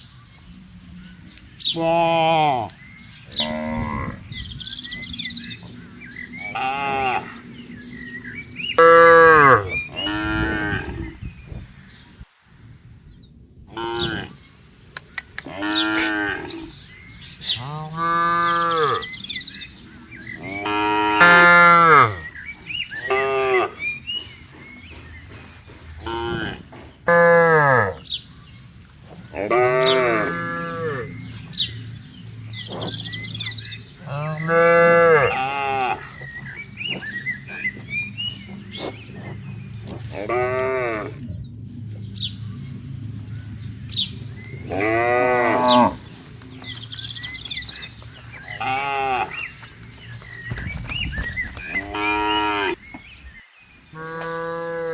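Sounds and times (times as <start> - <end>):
cows mooing: 1.6 - 11.2, 13.7 - 14.4, 15.4 - 28.1, 29.2 - 49.7, 51.7 - 52.8, 53.9 - 54.9.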